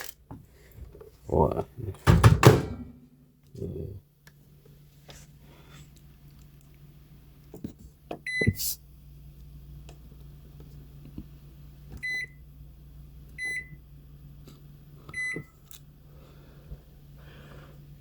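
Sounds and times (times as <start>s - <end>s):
knock: 2.1s - 3.0s
microwave control panel beeping: 2.1s - 3.0s, 8.2s - 8.6s, 12.0s - 12.4s, 13.3s - 13.8s, 15.1s - 15.5s.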